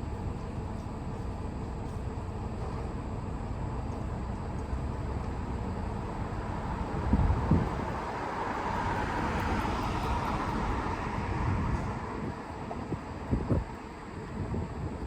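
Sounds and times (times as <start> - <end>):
low thumps from wind gusts: 6.0 - 15.0
wind buffeting microphone: 6.7 - 15.0.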